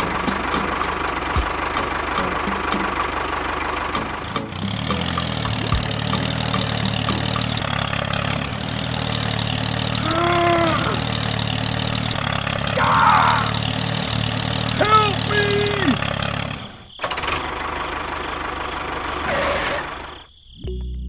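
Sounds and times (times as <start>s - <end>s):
tractor engine running: 0.0s - 20.9s
animal call: 10.0s - 11.2s, 12.7s - 13.6s.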